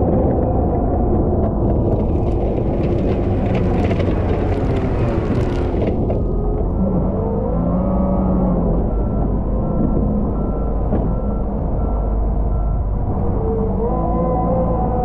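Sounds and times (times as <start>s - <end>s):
diesel engine running under load: 0.3s - 15.0s
reversing alarm beeping: 7.5s - 13.8s.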